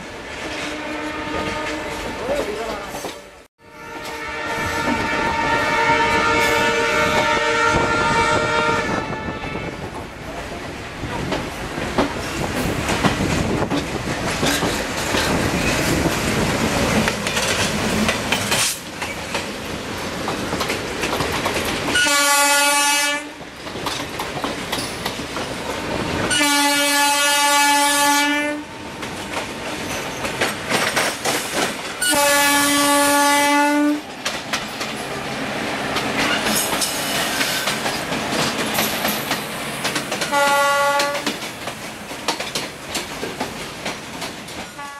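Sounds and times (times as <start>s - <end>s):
locomotive horn blasts: 0.5s - 2.1s, 3.3s - 9.8s, 22.0s - 23.4s, 26.3s - 28.7s, 32.0s - 34.0s, 40.3s - 41.3s
train wheels clattering: 11.1s - 22.4s, 23.4s - 25.9s, 29.0s - 32.4s, 34.0s - 44.9s.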